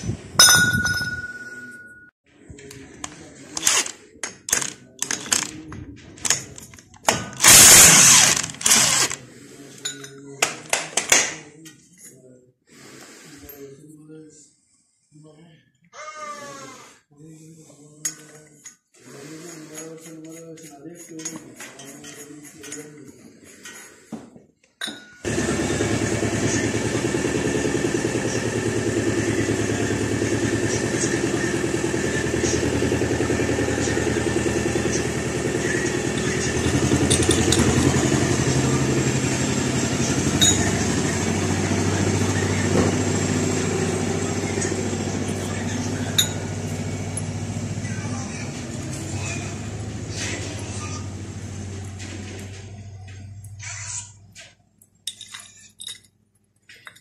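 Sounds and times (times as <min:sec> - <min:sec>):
sharp metallic clinks: 0:00.4 - 0:02.1
diesel engine running: 0:25.3 - 0:53.8.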